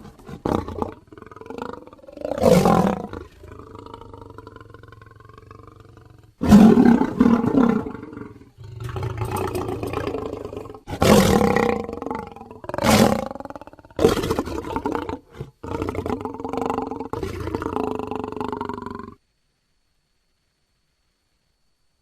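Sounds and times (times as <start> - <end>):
lion roaring: 0.0 - 19.2.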